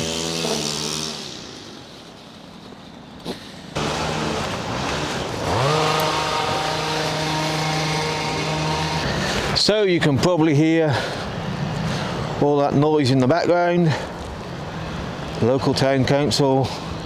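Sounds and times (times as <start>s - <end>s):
small engine running: 0.0s - 2.2s, 3.8s - 9.6s.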